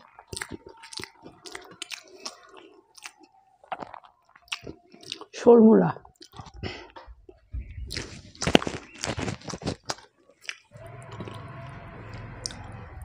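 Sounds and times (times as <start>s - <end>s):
chewing and wet mouth smacks: 0.0s - 5.4s, 6.0s - 11.4s.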